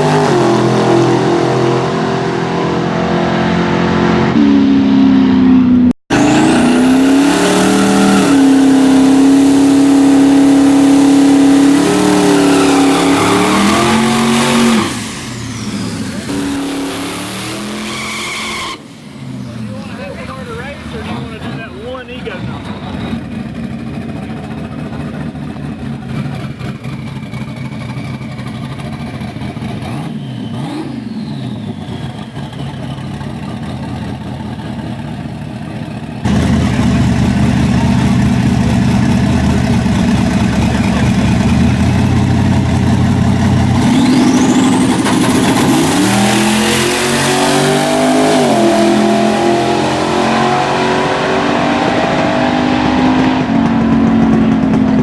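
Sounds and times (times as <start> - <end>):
racing car engine accelerating: 0.0 - 28.1, 36.2 - 55.0
high whistle rising: 11.6 - 19.1.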